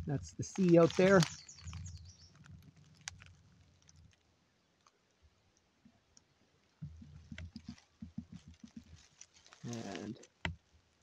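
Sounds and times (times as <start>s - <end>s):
faint low thuds: 6.8s - 10.6s.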